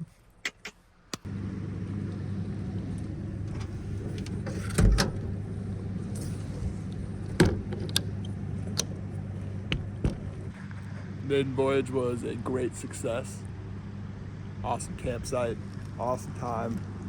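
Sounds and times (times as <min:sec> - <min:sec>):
truck engine humming: 0:00.0 - 0:17.0
sharp knocks and thumps: 0:09.7 - 0:10.4.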